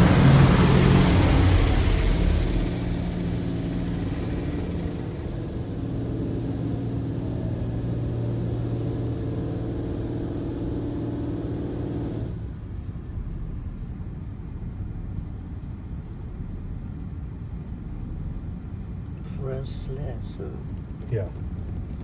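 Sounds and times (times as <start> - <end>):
high-pressure water spray hissing: 0.0 - 12.3
low machine hum: 0.0 - 12.6.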